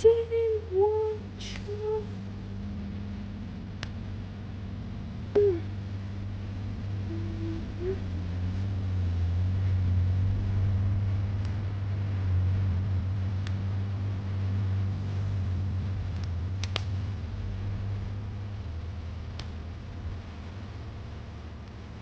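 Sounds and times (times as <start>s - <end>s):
low mechanical hum: 0.0s - 22.0s
sharp ticks: 16.2s - 16.9s.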